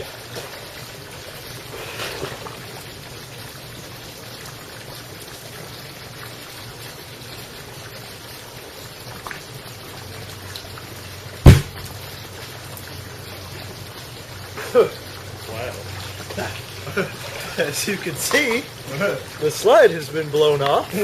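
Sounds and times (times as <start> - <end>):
watery background noise: 0.0 - 21.0
pistol shot underwater: 11.4 - 11.9.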